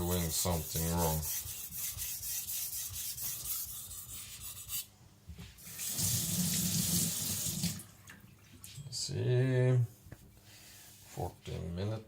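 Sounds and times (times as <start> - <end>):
knife scraping on whetstone: 0.0 - 4.9
water running from a tap: 5.6 - 8.3.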